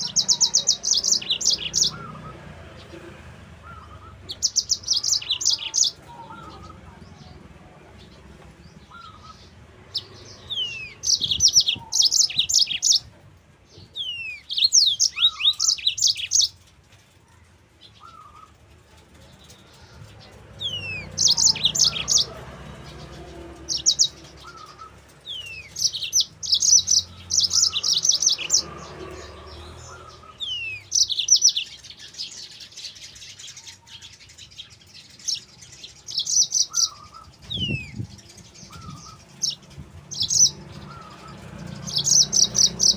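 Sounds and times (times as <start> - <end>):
canary singing: 0.0 - 42.9.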